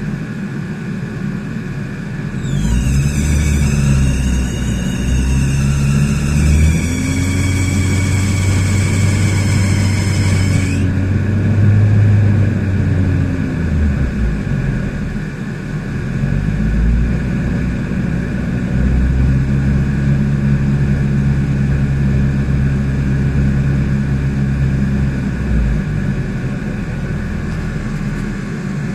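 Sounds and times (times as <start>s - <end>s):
car engine idling: 0.0s - 16.7s
high-pitched belt squeal: 2.4s - 11.0s.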